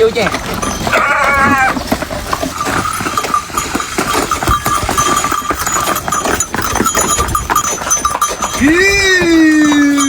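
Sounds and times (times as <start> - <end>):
cart knocking and rattling: 0.0 - 10.0
horse hooves clopping: 0.0 - 10.0.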